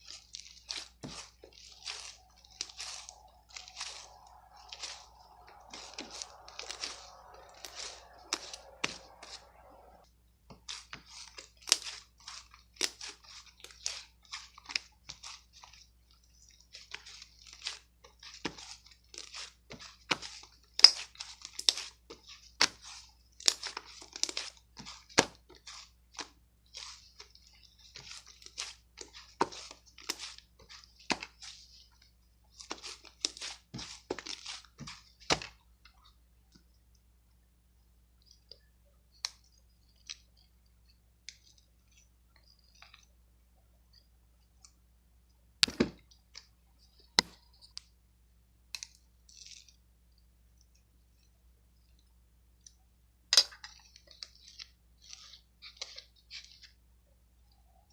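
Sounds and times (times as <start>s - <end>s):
person chewing crunchy food: 0.0s - 10.0s.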